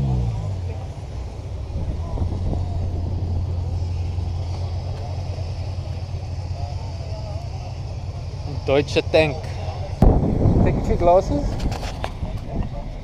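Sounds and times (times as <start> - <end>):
car engine idling: 0.0 - 13.0
faint voices: 0.6 - 10.0.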